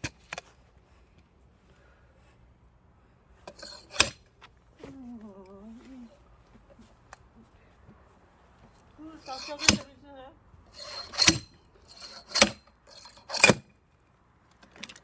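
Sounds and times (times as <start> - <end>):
person murmuring: 4.8 - 6.2, 9.0 - 10.4.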